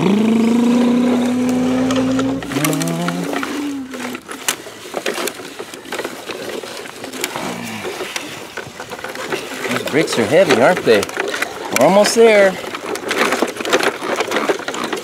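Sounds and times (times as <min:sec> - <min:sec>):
child humming like an engine: 0:00.0 - 0:04.3
small clicks and knocks: 0:00.0 - 0:15.0.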